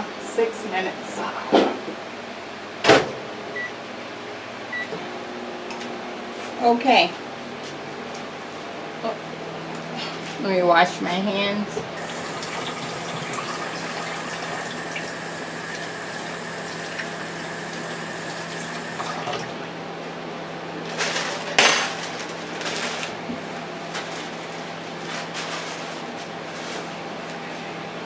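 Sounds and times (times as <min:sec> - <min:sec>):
tap water splashing: 0:12.0 - 0:19.6
rustling noise: 0:20.9 - 0:28.0.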